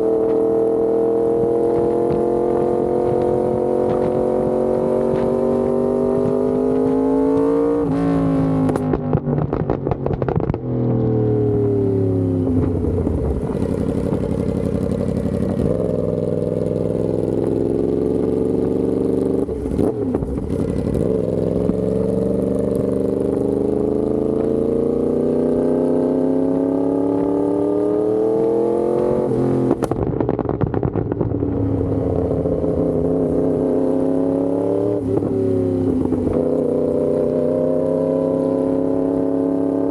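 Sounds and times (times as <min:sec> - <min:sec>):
motorcycle engine accelerating: 0:00.0 - 0:39.9
exhaust pops and crackles: 0:01.7 - 0:04.3, 0:05.0 - 0:05.5, 0:08.6 - 0:11.0, 0:12.6 - 0:15.9, 0:29.7 - 0:32.5.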